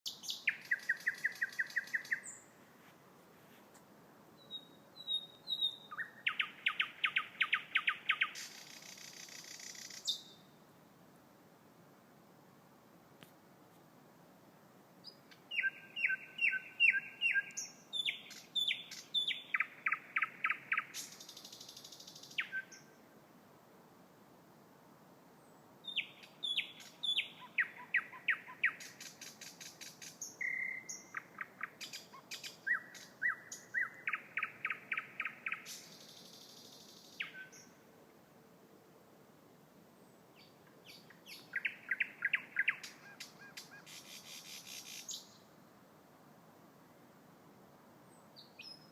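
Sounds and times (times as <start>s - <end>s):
bird singing whistled notes: 0.1s - 2.5s, 4.4s - 10.6s, 15.0s - 23.0s, 25.8s - 37.8s, 40.3s - 45.4s, 48.3s - 48.9s.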